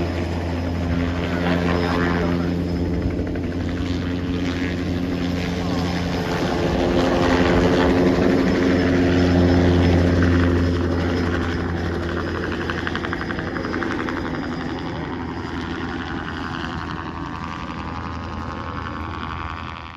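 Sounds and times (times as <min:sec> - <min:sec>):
helicopter flying away: 0:00.0 - 0:19.9.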